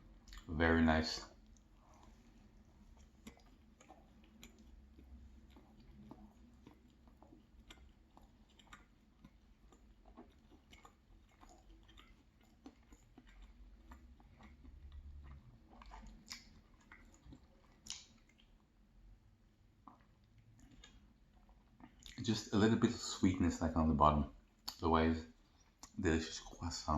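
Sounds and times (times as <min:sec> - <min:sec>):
chewing with mouth clicks: 0:00.0 - 0:18.8, 0:19.5 - 0:22.8, 0:24.4 - 0:26.6.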